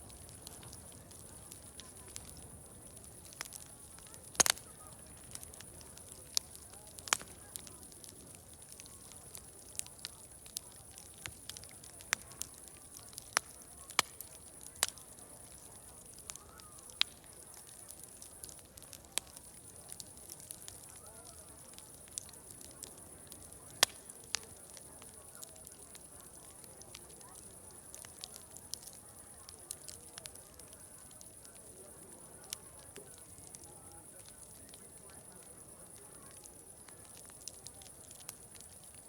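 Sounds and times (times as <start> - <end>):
murmur of distant voices: 0.0 - 39.0
wood fire crackling: 0.0 - 39.0.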